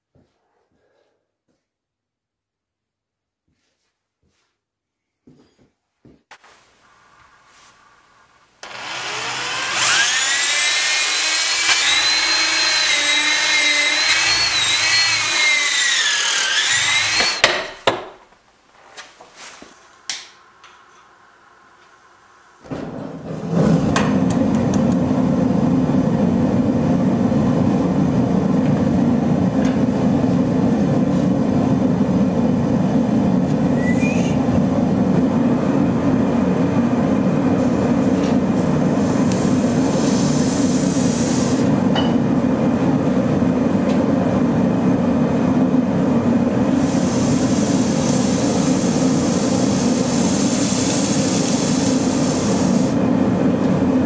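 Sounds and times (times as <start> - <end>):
power tool whining: 8.6 - 17.7.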